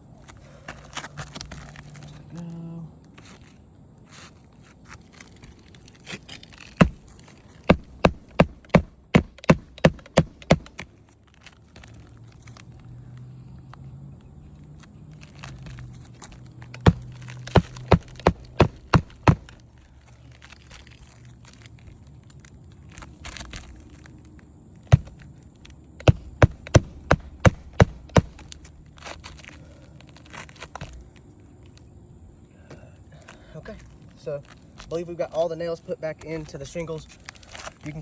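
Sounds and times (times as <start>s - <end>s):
hammer striking roofing nails: 6.8s - 7.1s, 7.7s - 10.8s, 16.8s - 19.6s, 24.9s - 25.1s, 26.0s - 28.5s.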